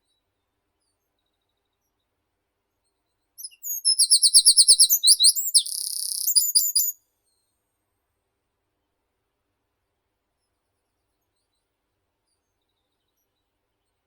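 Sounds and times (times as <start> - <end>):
songbird singing: 3.4 - 7.0.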